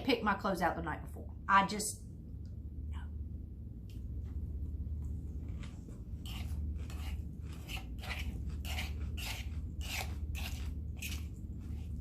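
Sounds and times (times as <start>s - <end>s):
steady low hum: 0.0s - 12.0s
chewing crisp salad: 5.4s - 12.0s.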